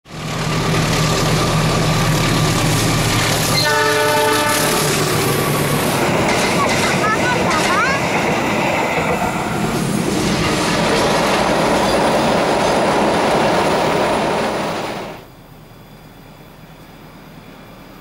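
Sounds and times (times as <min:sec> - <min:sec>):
train wheels rumbling on bridge: 0:00.1 - 0:15.3
outdoor background: 0:00.1 - 0:18.0.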